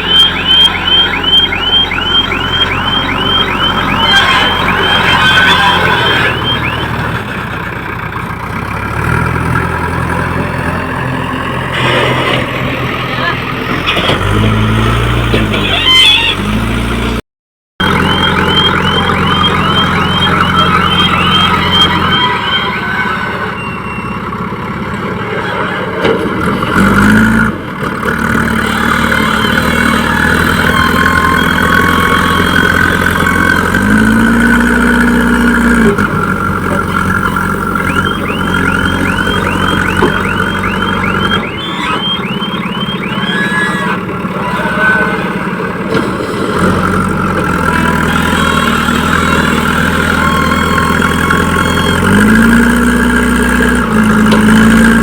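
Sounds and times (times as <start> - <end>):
electronic alarm chirping rapidly: 0.0 - 7.0, 17.8 - 24.3, 37.8 - 45.0
heavy machinery diesel engines: 0.0 - 17.2, 17.8 - 55.0.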